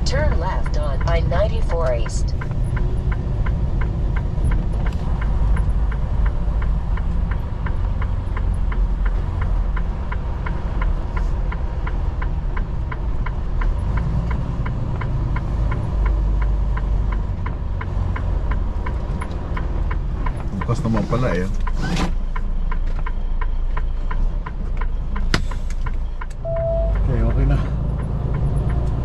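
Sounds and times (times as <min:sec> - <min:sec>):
turn-signal clicker ticking: 0:00.0 - 0:20.8, 0:21.6 - 0:29.0
truck engine rumble: 0:00.0 - 0:29.0.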